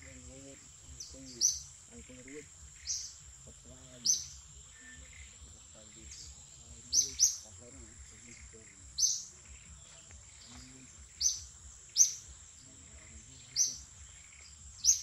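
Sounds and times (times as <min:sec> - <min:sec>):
high-pitched insect drone: 0:00.0 - 0:15.0
short high bird chirps: 0:06.9 - 0:07.5, 0:08.4 - 0:12.2, 0:13.5 - 0:15.0.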